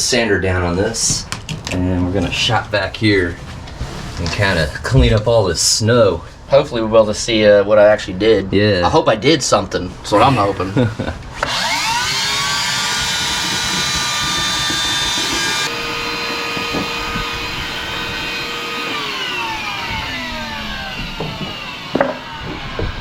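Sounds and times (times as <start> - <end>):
power tool motor whining: 11.4 - 23.0.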